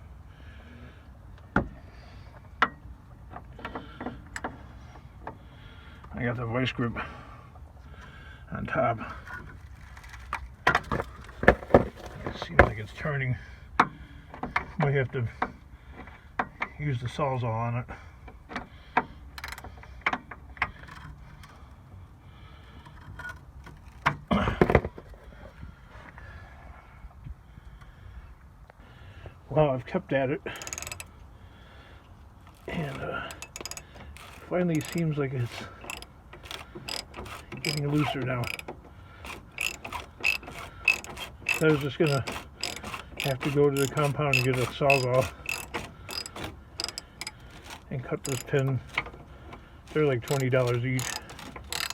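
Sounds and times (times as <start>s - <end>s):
hand tools striking metal: 30.6s - 31.1s, 32.7s - 38.6s, 39.3s - 49.1s, 49.9s - 51.9s.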